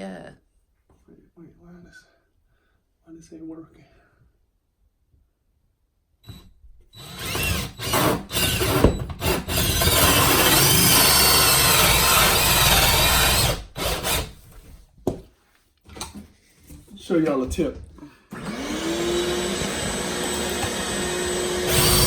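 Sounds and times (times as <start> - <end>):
electric drill whining: 6.3 - 14.4, 18.3 - 22.0.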